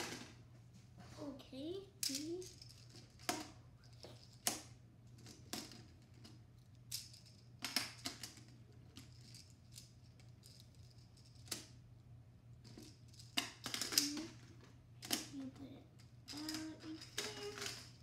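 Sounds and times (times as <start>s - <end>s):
plastic tiles clicking together: 12.7s - 14.4s, 16.3s - 18.0s.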